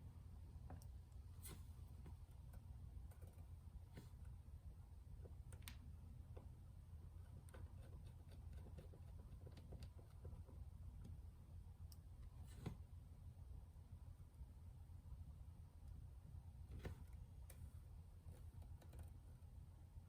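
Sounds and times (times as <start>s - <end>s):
small clicks and taps: 5.2s - 6.5s, 7.4s - 11.2s.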